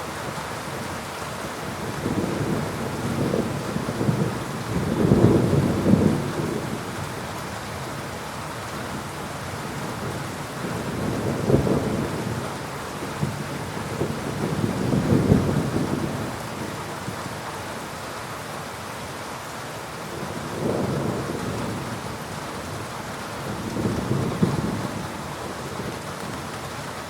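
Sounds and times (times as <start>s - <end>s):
heavy rain: 0.0s - 27.0s
thunder rumbling: 1.9s - 6.9s, 13.2s - 17.2s, 20.2s - 22.3s, 23.4s - 26.8s.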